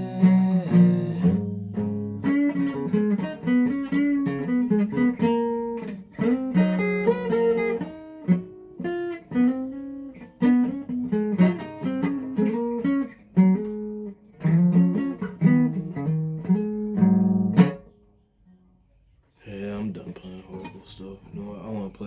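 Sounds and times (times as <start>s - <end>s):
solo guitar playing: 0.0s - 18.6s.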